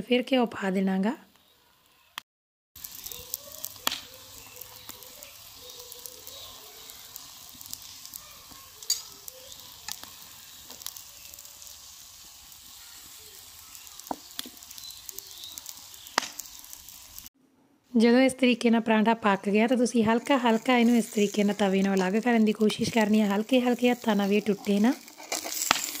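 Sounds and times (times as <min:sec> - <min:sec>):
oil popping and crackling: 0:02.8 - 0:17.3, 0:19.8 - 0:26.0
flatbread sizzling in a pan: 0:02.8 - 0:17.4, 0:19.3 - 0:26.0.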